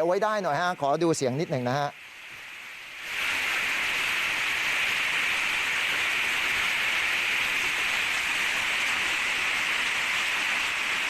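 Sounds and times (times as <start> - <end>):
hail and heavy rain: 3.0 - 11.0.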